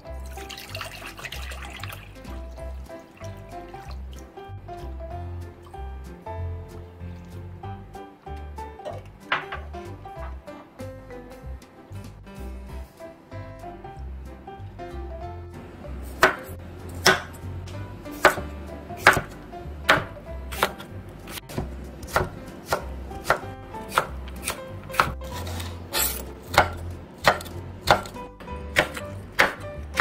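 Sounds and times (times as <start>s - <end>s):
knife chopping on wooden board: 16.2s - 17.4s, 18.1s - 30.0s.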